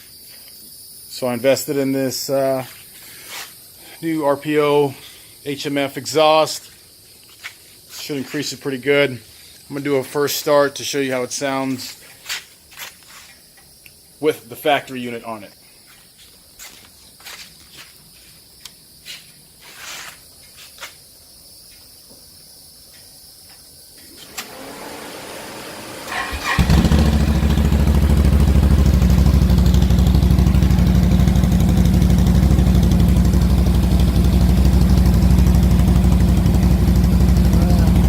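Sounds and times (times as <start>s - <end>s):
engine cranking and idling: 24.2s - 38.0s.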